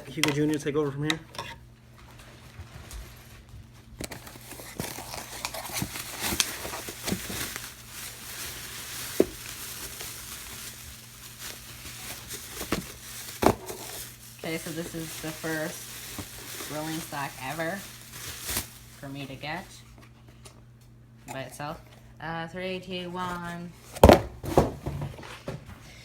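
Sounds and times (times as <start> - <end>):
cardboard packaging rustling: 2.1 - 20.2
cardboard snapping: 4.0 - 8.2, 9.0 - 14.2.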